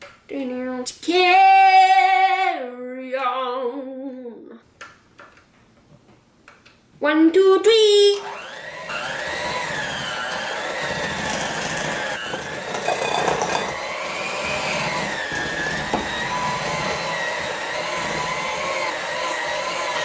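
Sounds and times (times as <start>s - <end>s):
electric hand mixer whine: 8.2s - 20.0s.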